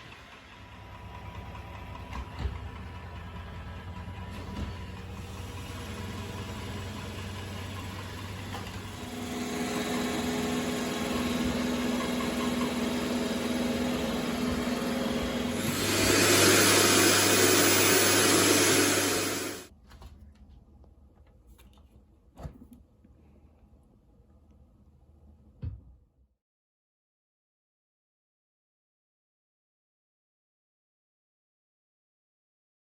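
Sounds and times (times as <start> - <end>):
robot vacuum motor hum: 8.5 - 19.7.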